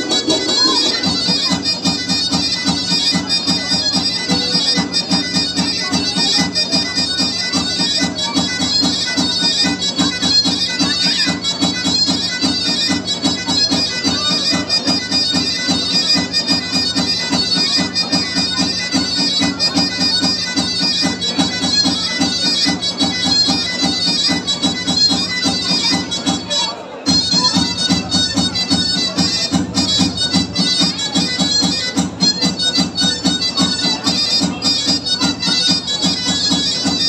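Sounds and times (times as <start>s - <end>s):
steady pulsing beat: 0.0s - 1.5s
reedy wind instrument: 0.0s - 37.0s.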